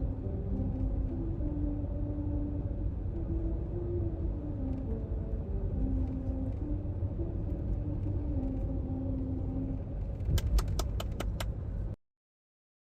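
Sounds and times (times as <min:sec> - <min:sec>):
faint tune: 0:00.0 - 0:11.0
vehicle rumble: 0:00.0 - 0:12.0
sharp metallic clicks: 0:10.3 - 0:11.5.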